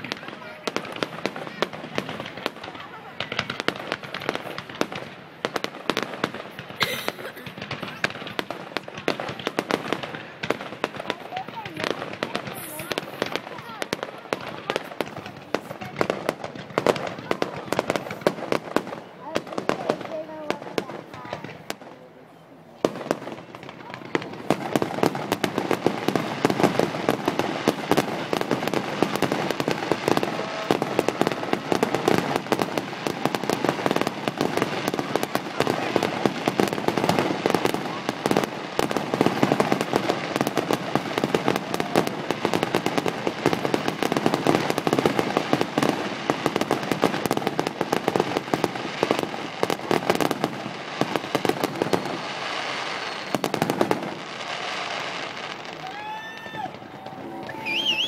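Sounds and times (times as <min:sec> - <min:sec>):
fireworks crackling and banging: 0:00.0 - 0:58.0
firework whistling: 0:24.2 - 0:58.0.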